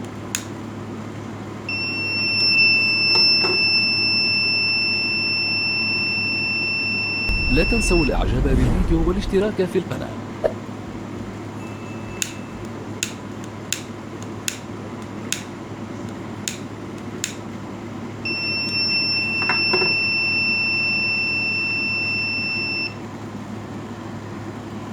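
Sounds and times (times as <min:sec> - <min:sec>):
fire alarm tone: 0:01.7 - 0:07.4, 0:18.3 - 0:23.0.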